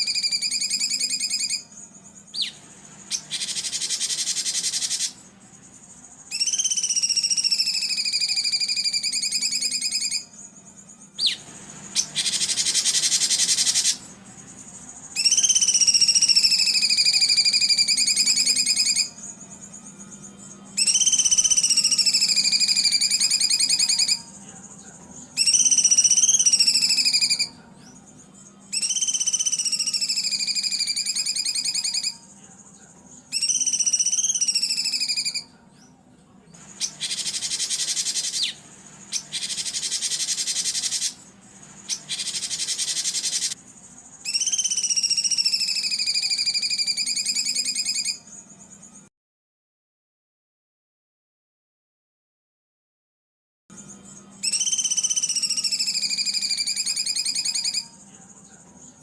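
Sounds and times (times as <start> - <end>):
harsh buzzy bird bursts: 0.0 - 24.5, 25.4 - 27.6, 36.6 - 48.2
songbird trilling: 0.0 - 32.3, 33.1 - 35.9, 36.6 - 48.4, 53.8 - 58.0
faint steady hum: 0.0 - 49.1.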